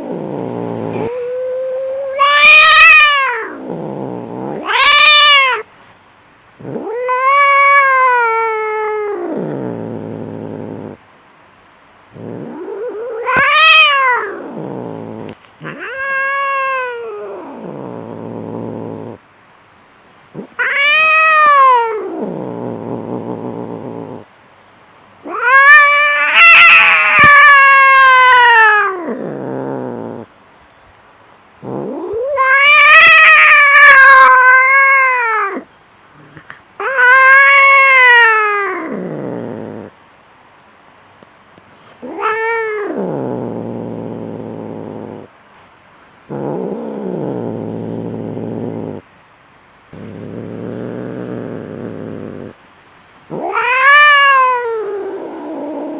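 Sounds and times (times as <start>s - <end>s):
cats growling: 0.0s - 5.7s, 6.6s - 11.0s, 12.1s - 19.2s, 20.3s - 24.3s, 25.2s - 30.3s, 31.6s - 40.0s, 41.9s - 45.4s, 46.2s - 49.1s, 49.9s - 52.6s, 53.3s - 55.9s
cats yowling: 0.0s - 5.7s, 6.6s - 11.0s, 12.2s - 19.2s, 20.4s - 24.2s, 25.2s - 30.3s, 31.7s - 35.7s, 36.8s - 39.9s, 42.0s - 45.3s, 53.3s - 55.9s.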